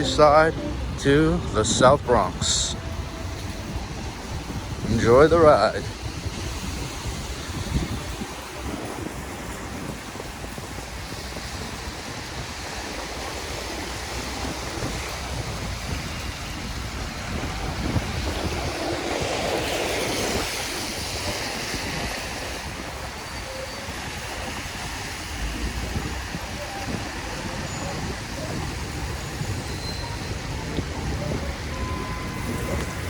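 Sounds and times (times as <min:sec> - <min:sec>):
wind rushing on microphone: 0:00.0 - 0:33.0
tyre hiss on wet road: 0:05.8 - 0:29.7.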